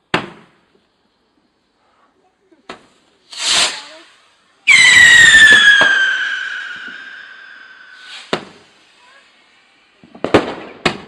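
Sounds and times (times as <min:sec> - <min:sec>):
firework whoosh: 0:03.2 - 0:10.8
shrill whistling firework: 0:03.3 - 0:09.4
sharp crack: 0:05.1 - 0:08.7.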